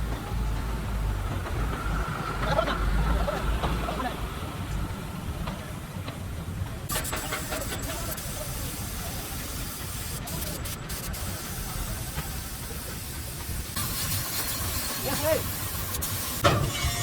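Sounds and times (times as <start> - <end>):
spraying hiss: 6.9 - 17.0.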